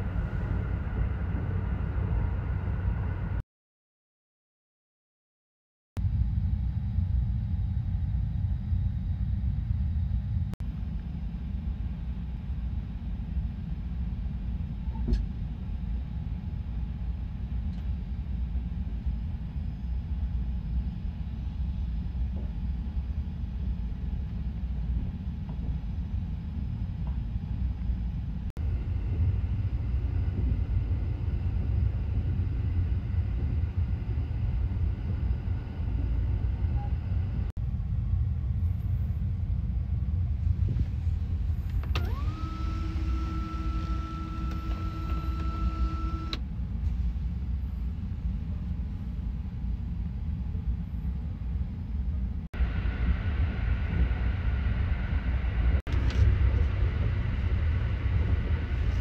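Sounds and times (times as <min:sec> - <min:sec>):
train cabin rumble: 0:00.0 - 0:03.4, 0:06.1 - 0:42.4, 0:55.0 - 0:59.0.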